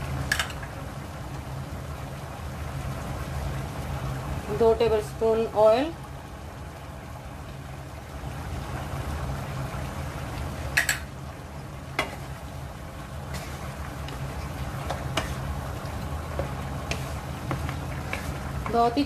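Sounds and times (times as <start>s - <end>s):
meat sizzling and bubbling: 0.0s - 19.0s
wooden spatula stirring: 13.3s - 19.0s.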